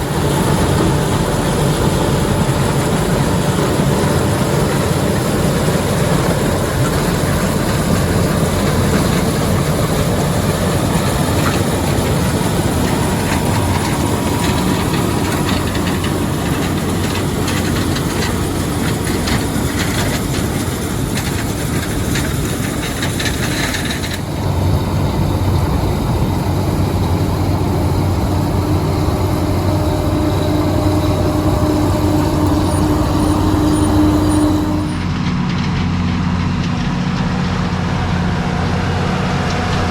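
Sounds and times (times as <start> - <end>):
low engine hum: 0.0 - 39.9
mechanical clatter: 4.1 - 24.4.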